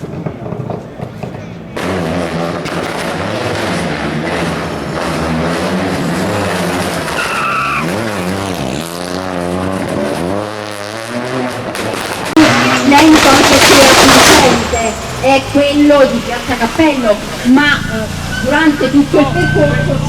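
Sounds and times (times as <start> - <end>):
rally car engine revving: 0.0 - 20.0
tyre squeal: 5.0 - 8.7, 17.6 - 20.0.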